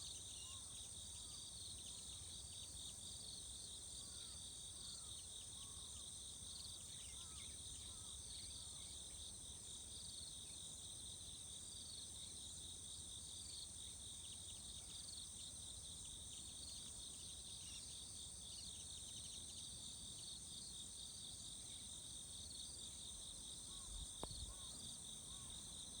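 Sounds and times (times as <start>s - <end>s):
insects chirring: 22.5s - 26.0s.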